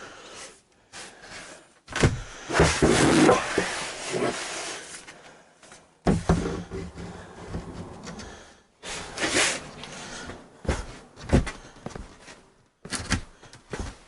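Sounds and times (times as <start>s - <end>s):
board scraping and knocking: 2.0s - 5.0s, 6.0s - 8.4s.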